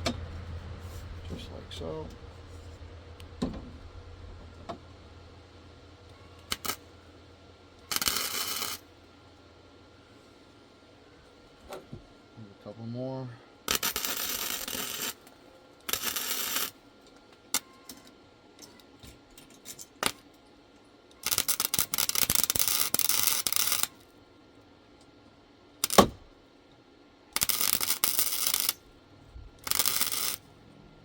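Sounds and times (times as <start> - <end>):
welding arc crackle: 6.4 - 6.9, 7.8 - 8.8, 13.7 - 16.8, 21.2 - 24.1, 25.8 - 26.1, 27.4 - 28.8, 29.5 - 30.5.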